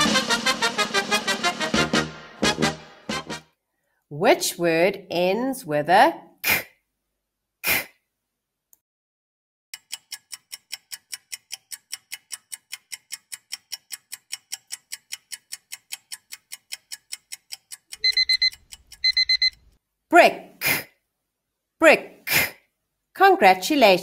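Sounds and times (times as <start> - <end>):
clock ticking: 9.8 - 19.7
alarm clock beep: 18.0 - 19.6.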